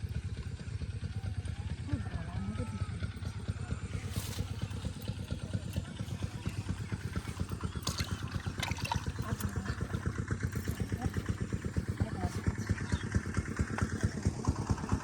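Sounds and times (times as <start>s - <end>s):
small engine putt-putt: 0.0s - 15.0s.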